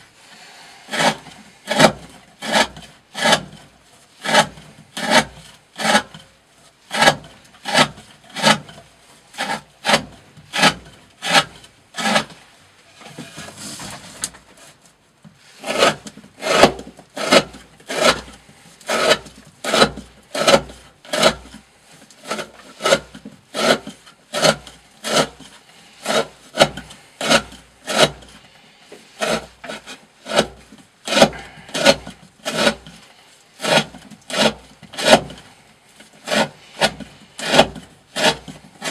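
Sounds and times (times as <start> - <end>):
knife slicing through rope: 29.2 - 33.0, 36.2 - 38.9.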